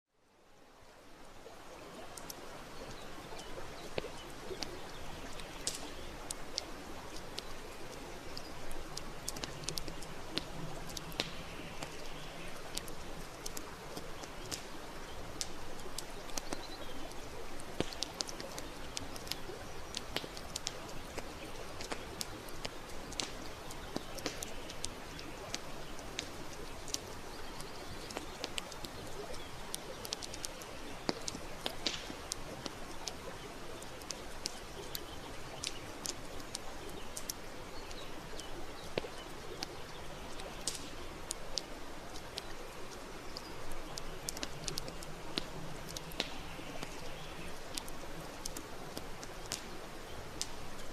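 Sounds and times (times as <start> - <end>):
river flowing: 0.2 - 50.9
campfire crackling and popping: 0.9 - 50.9.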